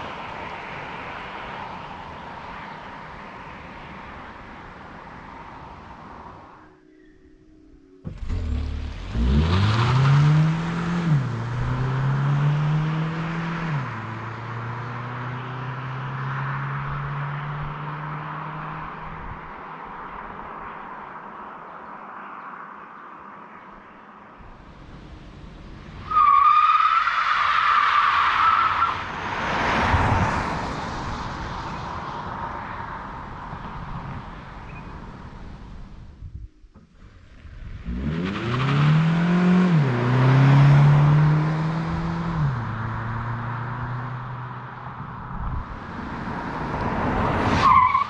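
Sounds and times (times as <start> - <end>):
road noise: 0.0 - 48.0
car engine accelerating hard: 8.1 - 19.4, 37.0 - 47.8.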